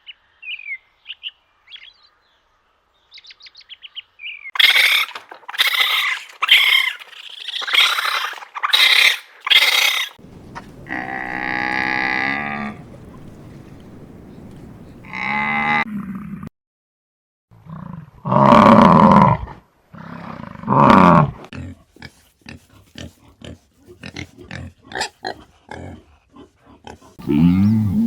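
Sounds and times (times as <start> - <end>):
animal calls: 4.6 - 15.8.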